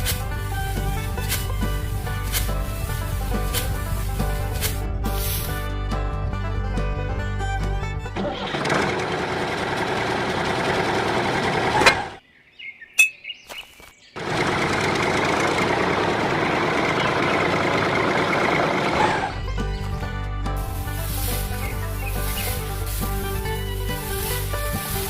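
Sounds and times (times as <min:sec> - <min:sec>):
engine droning: 0:00.0 - 0:12.2, 0:14.2 - 0:25.0
faint bird chirps: 0:12.2 - 0:14.2.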